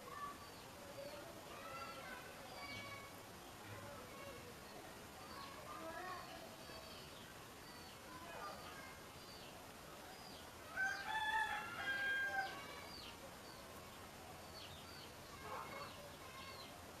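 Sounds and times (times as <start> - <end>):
small birds chirping: 0.0 - 17.0
rooster crowing: 10.7 - 12.8.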